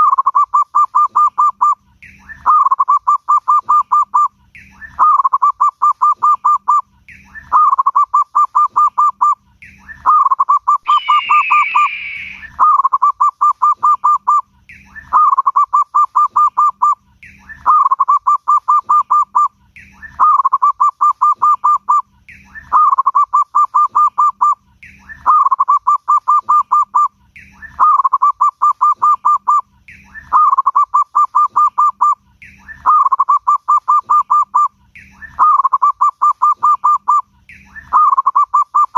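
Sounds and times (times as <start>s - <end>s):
dove cooing: 0.1s - 14.4s, 15.0s - 37.2s.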